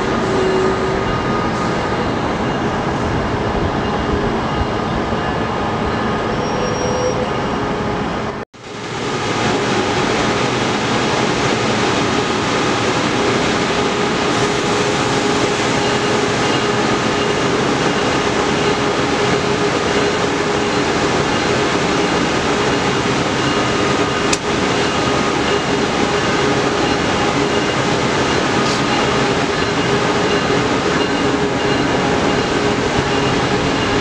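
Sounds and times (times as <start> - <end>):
train wheels and running gear: 8.9 - 34.0.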